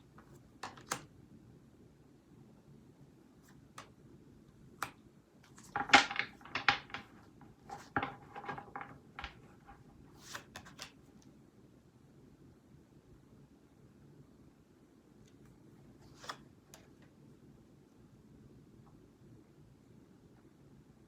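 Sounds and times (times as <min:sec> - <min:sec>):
cards being shuffled: 0:00.2 - 0:01.1, 0:04.8 - 0:11.0, 0:16.0 - 0:16.9.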